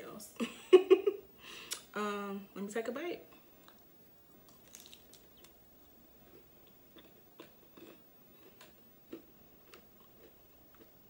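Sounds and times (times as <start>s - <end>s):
faint chewing mouth smacks: 3.3s - 5.6s.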